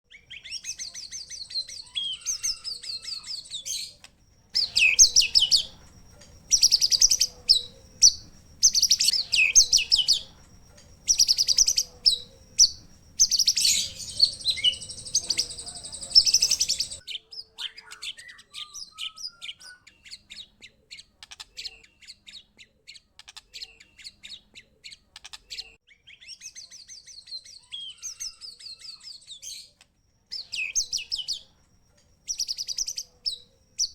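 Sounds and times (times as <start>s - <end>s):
songbirds singing: 0.1s - 33.9s
low background hum: 4.2s - 17.0s.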